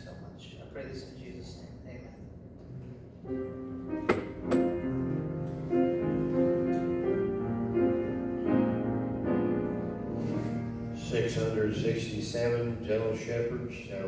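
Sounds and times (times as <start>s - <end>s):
piano playing slow chords: 3.2s - 14.0s.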